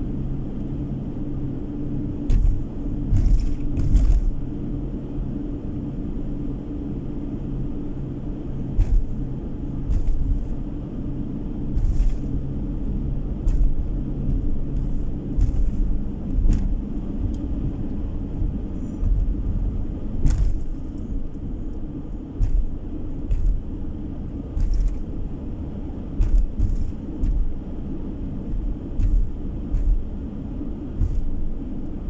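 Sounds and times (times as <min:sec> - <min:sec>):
car engine and road noise: 0:00.0 - 0:32.0
short knocks: 0:13.4 - 0:19.5, 0:20.2 - 0:21.0, 0:22.4 - 0:23.7, 0:26.2 - 0:27.7, 0:28.4 - 0:30.2, 0:31.0 - 0:31.5.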